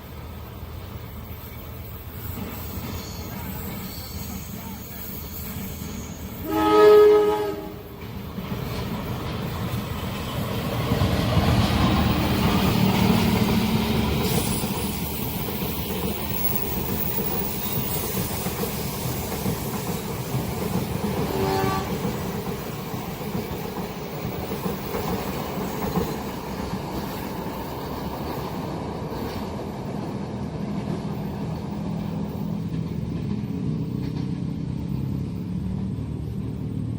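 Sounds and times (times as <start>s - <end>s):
train passing: 0.0s - 36.9s
train horn blowing: 5.8s - 7.9s, 21.2s - 22.2s.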